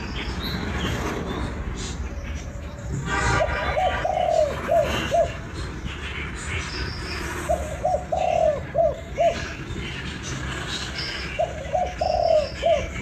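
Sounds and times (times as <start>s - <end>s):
dove cooing: 3.3s - 5.6s, 7.4s - 10.1s, 11.0s - 13.0s.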